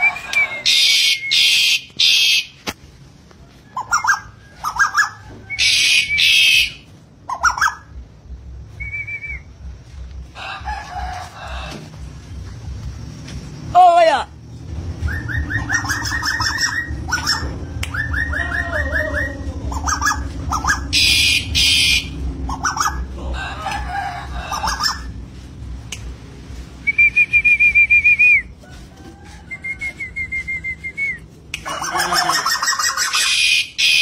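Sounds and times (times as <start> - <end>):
quavering bird whistle: 0.0 - 2.6, 3.8 - 7.9, 8.7 - 9.5, 15.0 - 23.0, 26.8 - 28.5, 29.6 - 31.3, 32.0 - 34.0
steady low hum: 0.0 - 33.8
bird trills: 3.8 - 7.9, 15.0 - 23.1.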